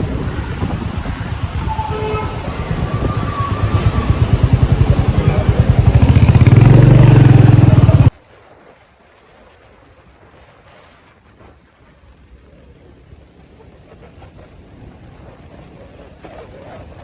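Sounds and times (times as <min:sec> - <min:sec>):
motorcycle engine rumble: 0:00.0 - 0:08.2.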